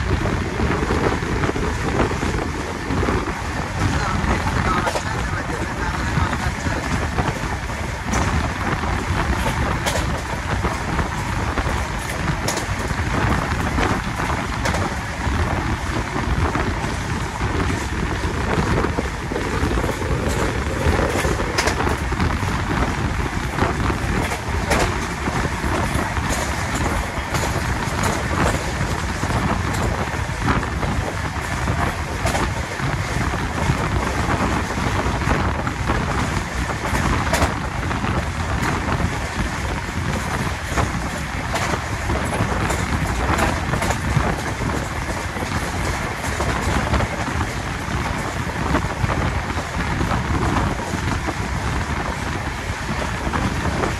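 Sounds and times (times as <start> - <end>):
train wheels rumbling: 0.0 - 53.9
wheels clicking on rails: 0.0 - 53.9
wind rushing on microphone: 0.0 - 53.9.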